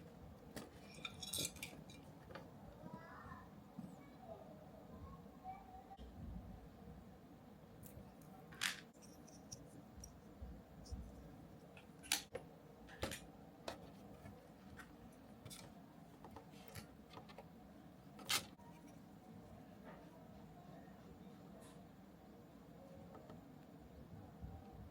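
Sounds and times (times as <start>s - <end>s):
small parts and tools clicking: 7.8s - 10.2s.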